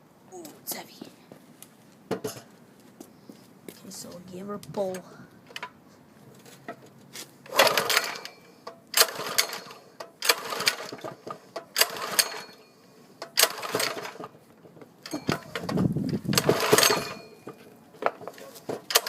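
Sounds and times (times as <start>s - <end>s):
recoil starter rope rasp: 7.5s - 8.3s
engine cranking: 7.5s - 12.6s, 13.3s - 14.4s, 15.0s - 17.5s.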